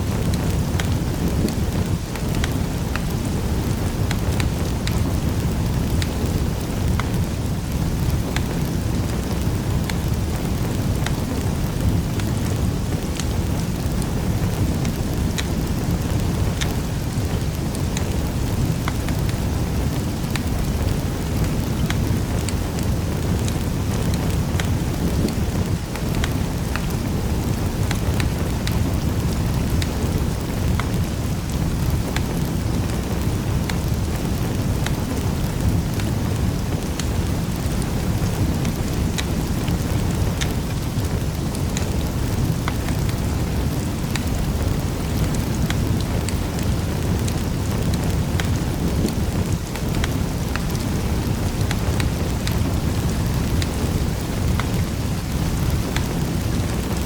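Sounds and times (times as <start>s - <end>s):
fire crackling and popping: 0.0s - 57.0s
low rumble of flames: 0.0s - 57.0s.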